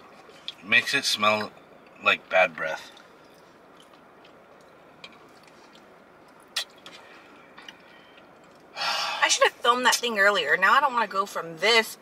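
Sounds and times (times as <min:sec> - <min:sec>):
faint chewing of food: 0:02.8 - 0:08.7
wet mouth clicks: 0:06.5 - 0:06.9.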